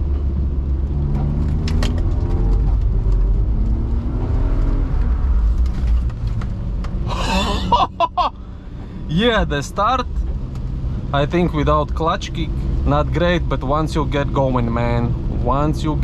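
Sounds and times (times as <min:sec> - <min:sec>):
car engine revving: 0:00.0 - 0:08.3
heavy low rumble: 0:00.0 - 0:16.0.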